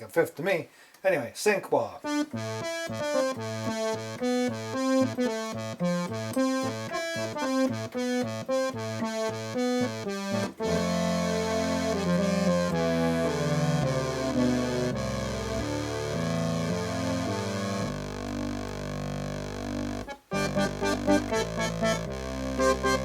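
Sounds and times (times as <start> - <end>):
synthesizer staccato notes: 2.1 - 23.0
synthesizer sustained notes: 10.6 - 23.0.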